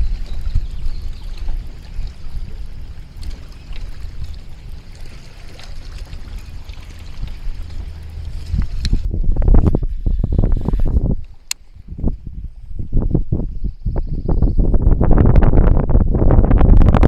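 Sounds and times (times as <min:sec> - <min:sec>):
light splashes: 0:00.0 - 0:09.1
water trickling and lapping: 0:00.0 - 0:13.6
wind on microphone: 0:00.0 - 0:17.0.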